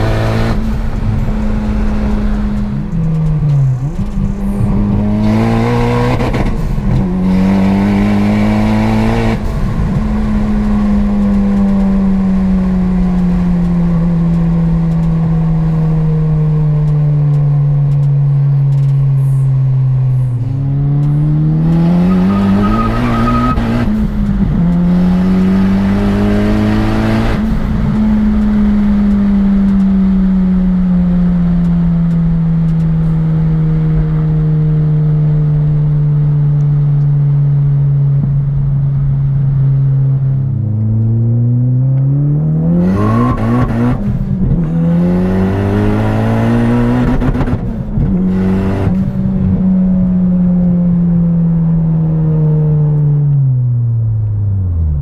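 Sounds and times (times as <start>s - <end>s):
car engine from inside cabin: 0.0s - 55.0s.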